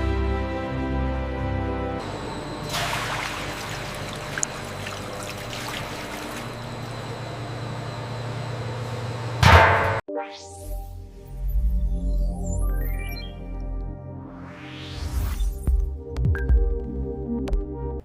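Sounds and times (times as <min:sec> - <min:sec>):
rising sweep: 0:14.2 - 0:15.7.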